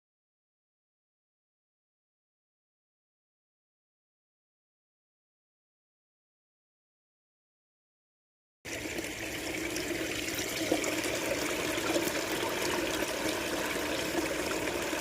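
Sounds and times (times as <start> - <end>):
running water splashing: 8.7 - 15.0.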